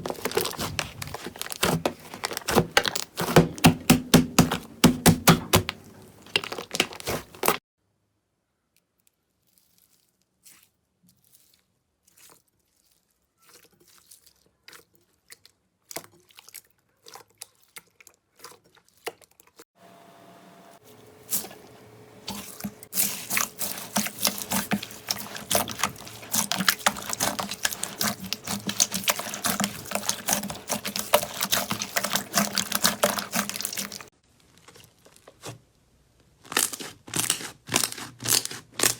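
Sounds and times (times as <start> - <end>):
slime crackling and popping: 0.0 - 7.6, 23.0 - 34.1, 36.4 - 38.9.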